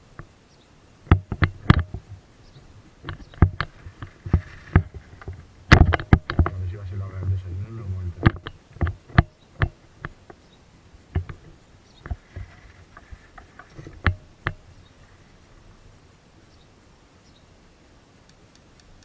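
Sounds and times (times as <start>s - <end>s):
sharp knocks and clicks: 1.0s - 10.4s, 11.0s - 15.1s.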